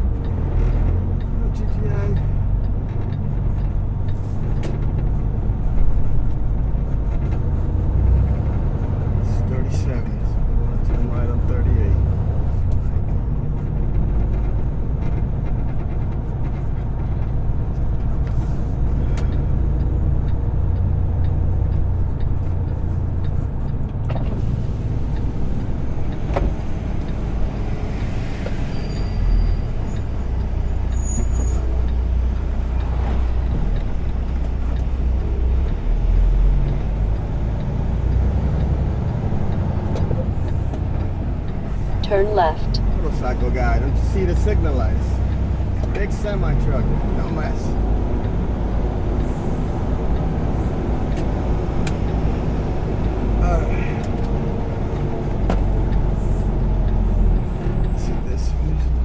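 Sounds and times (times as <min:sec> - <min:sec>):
diesel truck engine rumbling: 0:00.0 - 0:59.0.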